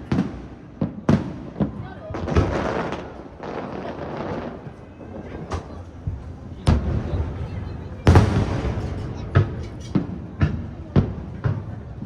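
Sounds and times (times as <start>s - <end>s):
murmur of crowd voices: 0.0s - 12.0s
firework shells bursting: 2.2s - 10.7s.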